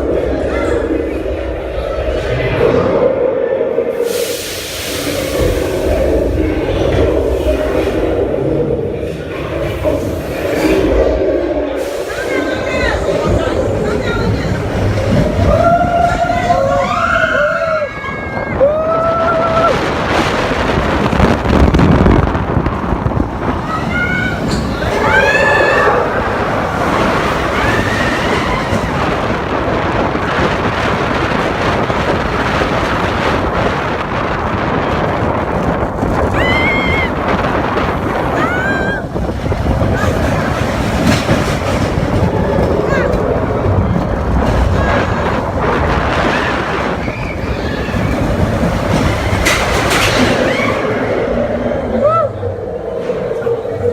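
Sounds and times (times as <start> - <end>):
roller coaster wheels rumbling on rail: 0.0 - 53.9
wind rushing over microphone: 0.0 - 53.9
burst of hiss: 4.0 - 6.0.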